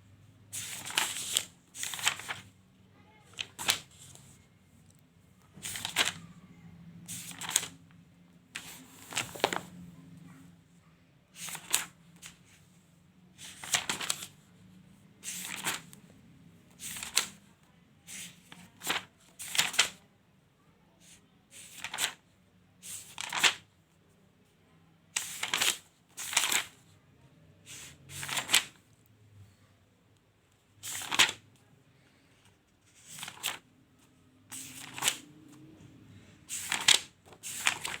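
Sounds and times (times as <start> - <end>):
notebook pages turning: 0.6 - 2.5, 3.3 - 4.2, 5.6 - 6.3, 7.1 - 7.8, 8.6 - 9.8, 11.4 - 12.5, 13.4 - 14.4, 15.2 - 16.0, 16.8 - 17.4, 18.1 - 20.0, 21.6 - 22.2, 22.9 - 23.6, 25.2 - 26.9, 27.7 - 28.8, 30.8 - 31.4, 32.9 - 33.6, 34.5 - 35.8, 36.5 - 38.0.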